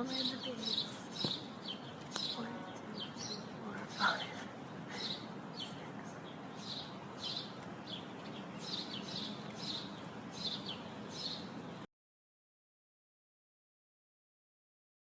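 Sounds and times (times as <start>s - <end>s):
small bird chirping: 0.0s - 4.3s, 5.0s - 11.6s
faint background hiss: 0.0s - 11.9s.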